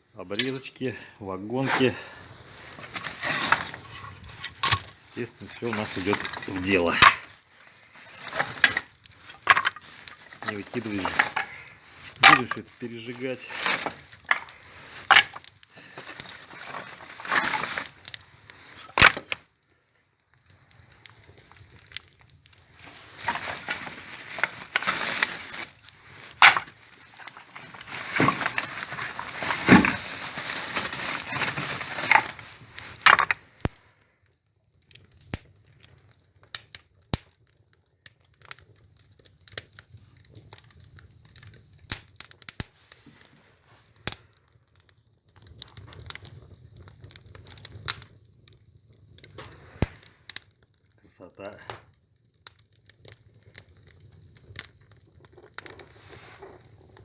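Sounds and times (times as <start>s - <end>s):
wood fire crackling: 0.0s - 57.0s
wood clattering on wood and metal: 0.2s - 2.0s, 2.7s - 7.4s, 8.0s - 19.4s, 22.8s - 33.4s.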